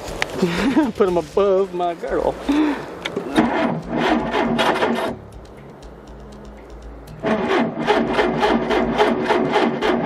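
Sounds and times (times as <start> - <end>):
boat engine starter cranking: 3.0 - 5.5, 6.8 - 10.0.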